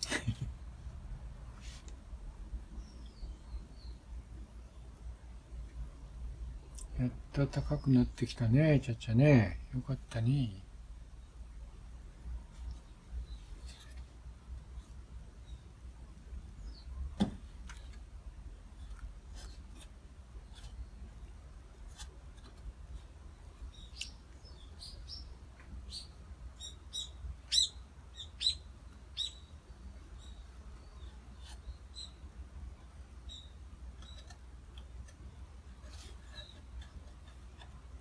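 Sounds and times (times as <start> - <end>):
small bird chirping: 2.7 - 4.1, 16.6 - 17.1, 23.4 - 32.3, 33.2 - 34.5.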